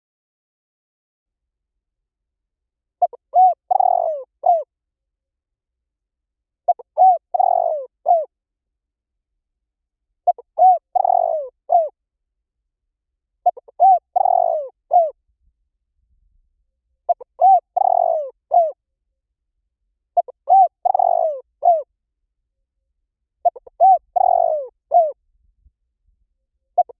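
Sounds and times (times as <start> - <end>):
dove cooing: 3.0 - 4.7, 6.7 - 8.3, 10.2 - 11.9, 13.4 - 15.2, 17.1 - 18.8, 20.2 - 21.9, 23.4 - 25.2.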